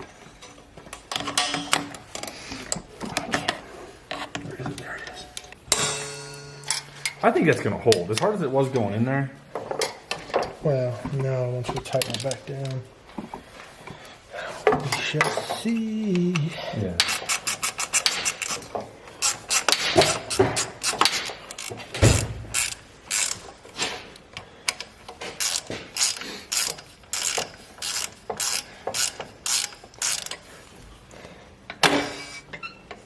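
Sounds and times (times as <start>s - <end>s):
ratchet wrench clicking: 17.0s - 23.6s, 25.4s - 30.4s.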